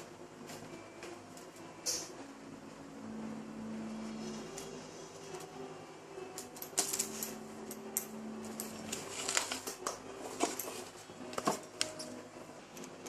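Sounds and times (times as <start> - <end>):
paper rustling: 8.7 - 12.1.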